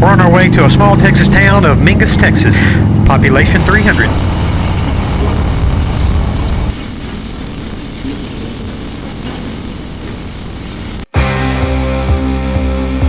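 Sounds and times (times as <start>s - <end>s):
motorcycle engine rumble: 3.4s - 11.1s
music: 11.1s - 13.0s.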